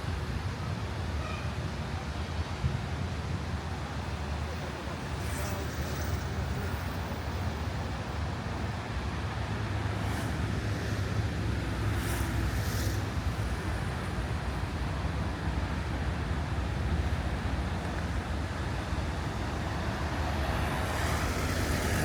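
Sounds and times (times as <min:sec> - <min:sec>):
street traffic noise: 0:00.0 - 0:22.0
bus engine rumbling: 0:03.5 - 0:22.0.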